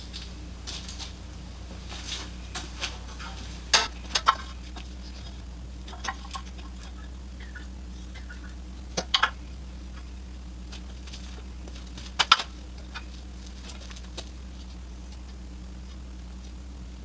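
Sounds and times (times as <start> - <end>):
steady low hum: 0.0 - 17.0
sharp clattering knocks: 2.5 - 10.1
faint ticks: 3.8 - 16.9.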